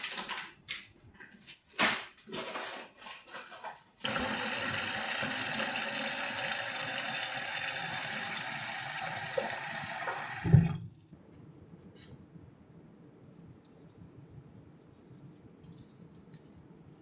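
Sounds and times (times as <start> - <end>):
water running from a tap: 4.0 - 10.9
tap shut off knock: 8.9 - 10.8.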